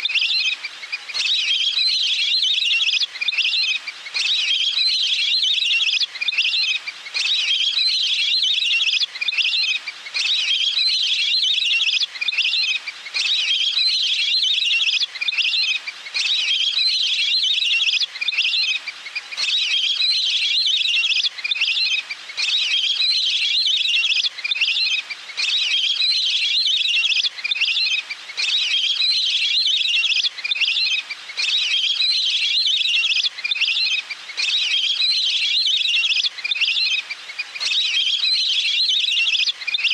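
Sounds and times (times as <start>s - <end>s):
waterbird call trilling: 19.4s - 39.9s.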